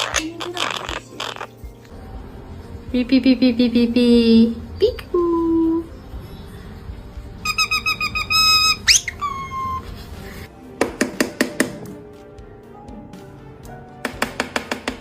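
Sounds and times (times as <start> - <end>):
parrot whistling: 7.4 - 9.9.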